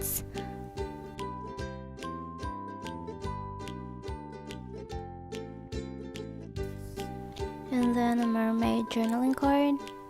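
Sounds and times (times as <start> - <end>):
cheerful plucked background music: 0.0 - 10.0.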